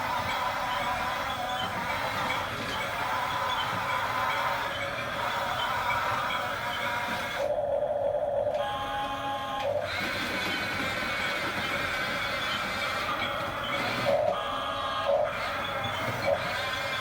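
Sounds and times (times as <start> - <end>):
small electric motors whirring: 9.0 - 17.0.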